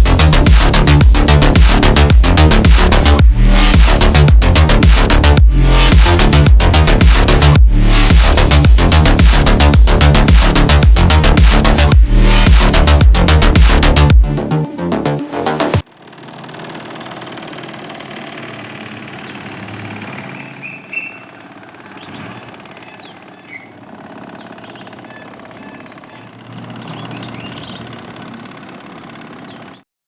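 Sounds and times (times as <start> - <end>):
music: 0.0 - 15.8
small motor whirring: 15.8 - 29.8
birds chirping: 16.3 - 29.9.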